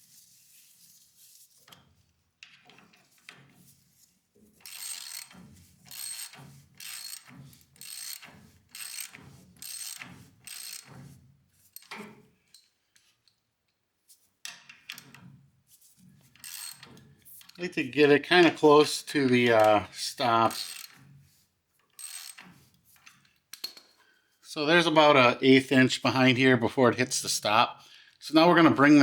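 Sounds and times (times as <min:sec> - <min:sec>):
socket ratchet clicking: 0:04.7 - 0:10.9, 0:16.4 - 0:16.9, 0:20.5 - 0:21.0, 0:22.0 - 0:22.5.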